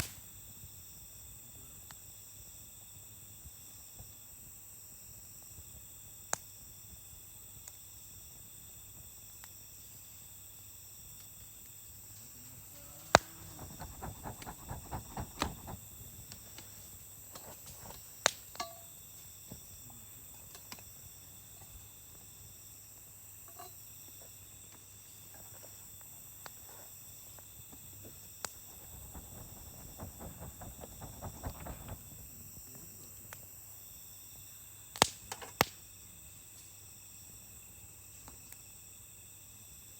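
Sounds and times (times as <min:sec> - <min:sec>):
crickets chirring: 0:11.7 - 0:39.9
campfire crackling and popping: 0:28.5 - 0:32.4.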